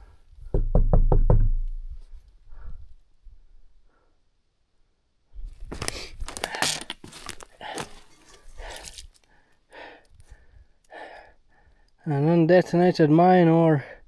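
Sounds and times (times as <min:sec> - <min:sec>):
soft rustles: 0:05.4 - 0:09.3
crunching and scraping: 0:05.5 - 0:09.3.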